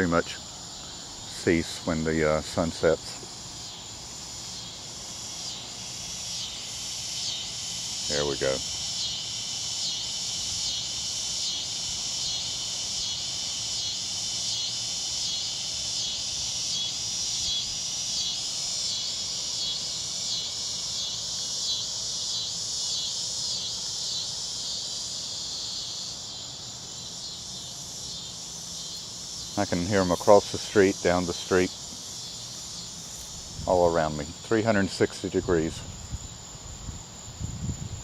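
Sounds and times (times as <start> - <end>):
cicadas pulsing buzz: 0.0 - 38.0
crickets high trill: 0.0 - 38.0.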